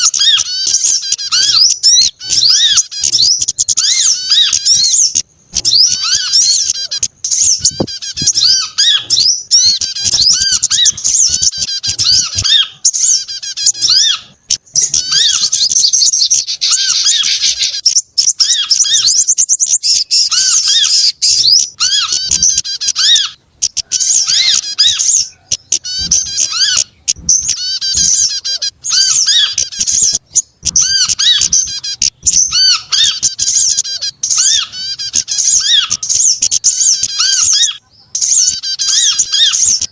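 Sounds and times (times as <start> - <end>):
lower arched bird call: 0.0 - 39.9
small birds chirping: 0.0 - 39.9.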